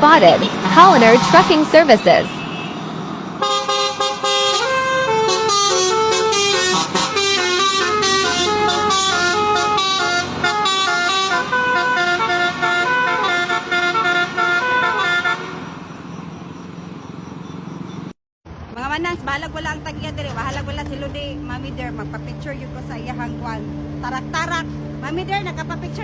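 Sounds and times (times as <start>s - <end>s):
truck musical horn: 0.2s - 15.9s.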